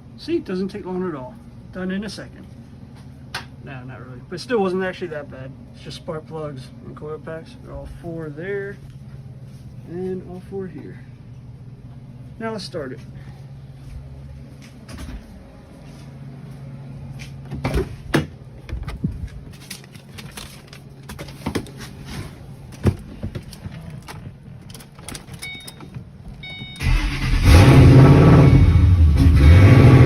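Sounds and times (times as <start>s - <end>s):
faint steady hum: 0.0s - 27.2s
car engine cranking and running: 23.4s - 30.0s.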